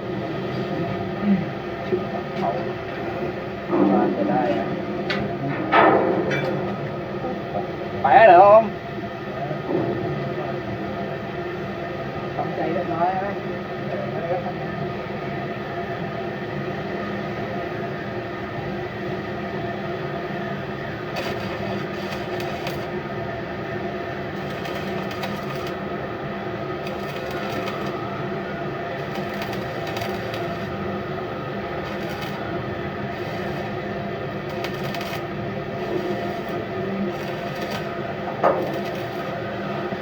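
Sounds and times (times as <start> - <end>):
machinery humming: 0.0 - 40.0.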